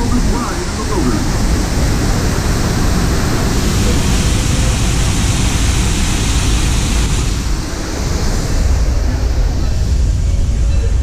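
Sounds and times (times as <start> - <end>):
passenger train rumbling: 0.0 - 5.9.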